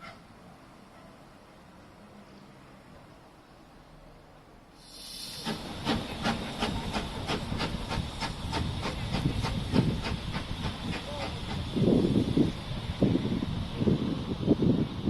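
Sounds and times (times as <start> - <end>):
steam train chugging: 4.8 - 15.0.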